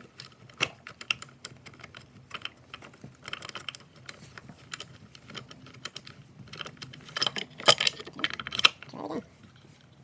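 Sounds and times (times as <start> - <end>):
chainsaw chain clicking and rattling: 1.0 - 8.8.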